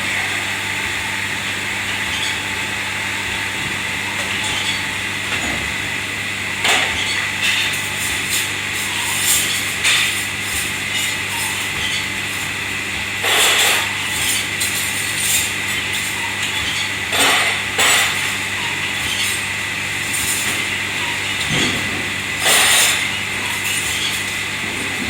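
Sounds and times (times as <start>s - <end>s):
kitchen machinery hum: 0.0s - 25.0s
dishes and utensils clattering: 13.2s - 15.5s, 16.6s - 18.3s, 21.4s - 24.2s.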